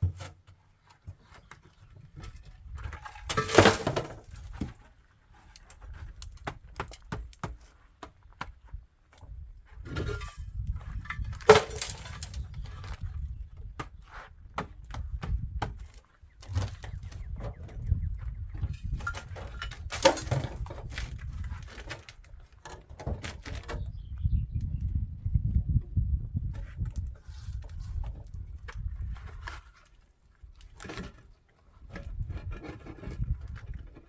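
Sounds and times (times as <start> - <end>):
hard objects clattering: 2.8 - 4.8, 10.0 - 12.7, 18.7 - 22.1.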